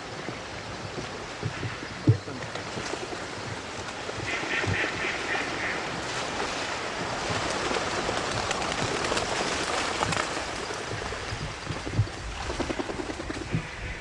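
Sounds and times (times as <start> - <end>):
rush of wings and water: 0.0 - 14.0
ducks quacking: 4.2 - 6.1.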